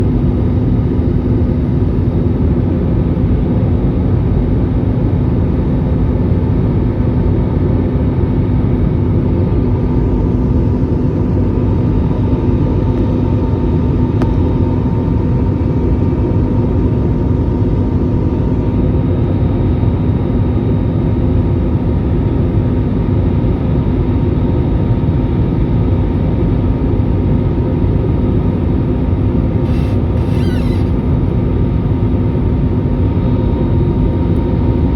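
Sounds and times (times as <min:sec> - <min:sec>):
constant low hum: 0:00.0 - 0:34.9
engine and airflow rumble: 0:00.0 - 0:34.9.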